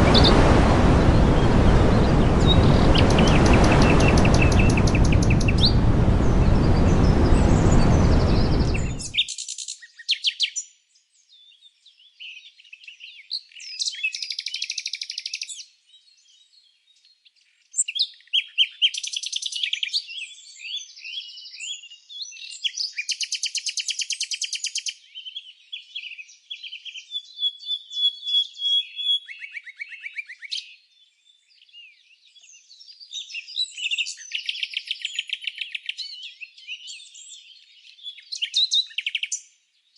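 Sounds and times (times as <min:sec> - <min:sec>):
loud even rushing noise: 0:00.0 - 0:09.2
songbirds trilling and chirping: 0:00.0 - 0:10.4.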